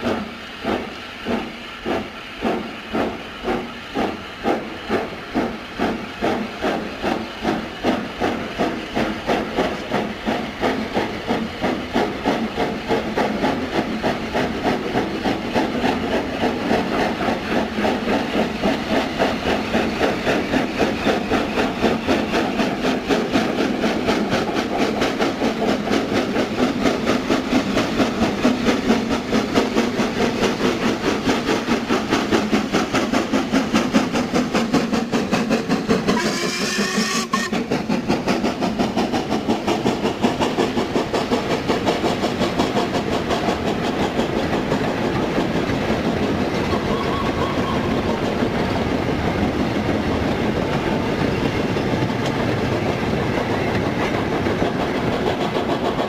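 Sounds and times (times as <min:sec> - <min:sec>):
steam train rhythmic beat: 0:00.0 - 0:56.0
train whistle: 0:36.1 - 0:37.7, 0:46.7 - 0:48.0.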